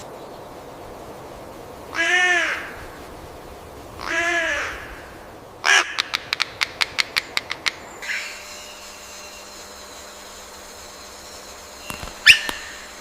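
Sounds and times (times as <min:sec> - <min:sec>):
crow cawing: 0:01.9 - 0:02.8, 0:04.0 - 0:06.2
sharp clicks: 0:11.8 - 0:12.8.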